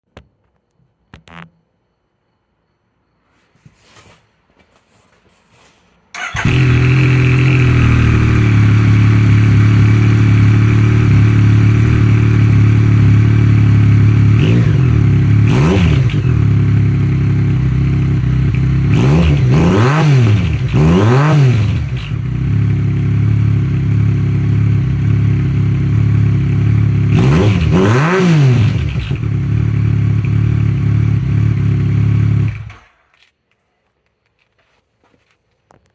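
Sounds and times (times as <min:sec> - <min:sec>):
motorcycle engine idling and revving: 0:06.2 - 0:33.1.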